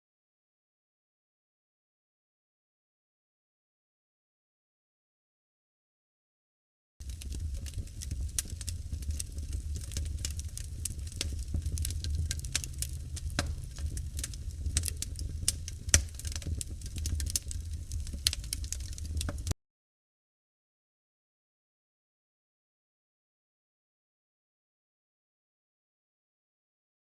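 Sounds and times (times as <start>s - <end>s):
low fire rumble: 7.0s - 19.5s
wood fire crackling and popping: 7.0s - 19.6s.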